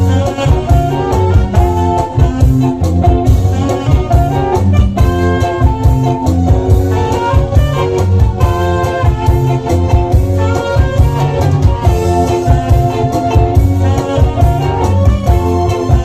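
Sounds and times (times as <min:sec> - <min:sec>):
live band playing dance music: 0:00.0 - 0:16.0.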